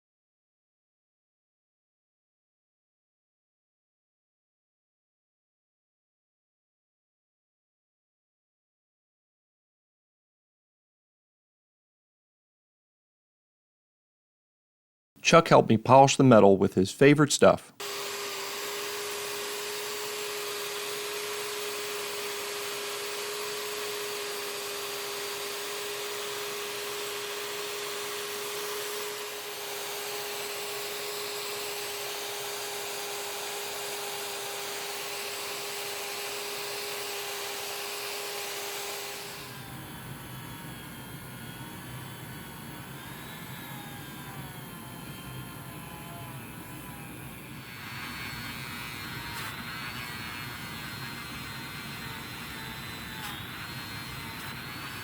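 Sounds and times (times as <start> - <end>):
rotary tool whining: 17.8 - 55.0.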